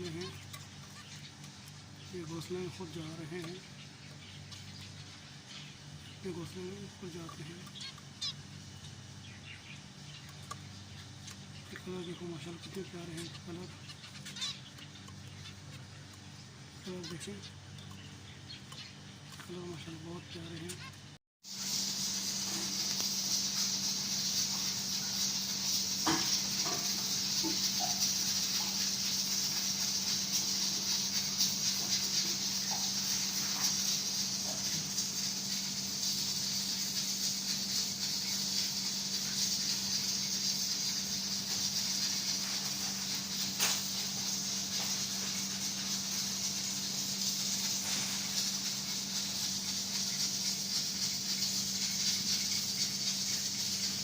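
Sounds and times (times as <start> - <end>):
steady hiss: 0.0 - 18.1, 21.4 - 54.0
finch calls: 0.0 - 21.1, 22.5 - 35.0.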